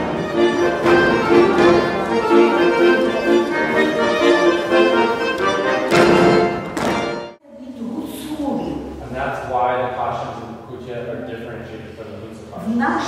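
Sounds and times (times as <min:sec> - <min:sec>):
instrumental music: 0:00.0 - 0:07.4.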